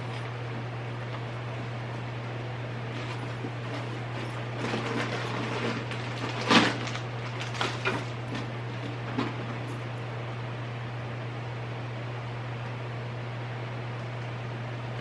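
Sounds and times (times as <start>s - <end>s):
belongings rustling and clattering: 0.0s - 10.1s
steady low hum: 0.0s - 15.0s.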